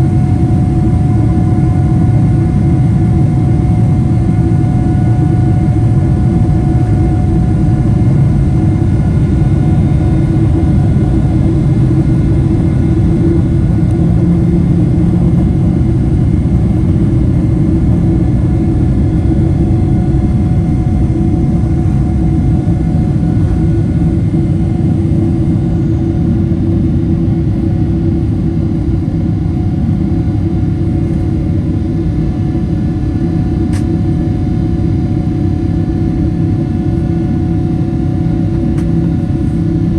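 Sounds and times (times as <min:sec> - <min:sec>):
jet engines rumbling in cabin: 0:00.0 - 0:39.9
jet engine whining tones: 0:00.2 - 0:27.6.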